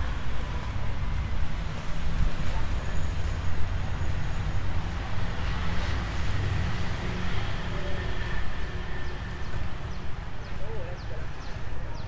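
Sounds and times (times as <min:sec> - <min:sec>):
road traffic rumble and hiss: 0:00.0 - 0:12.0.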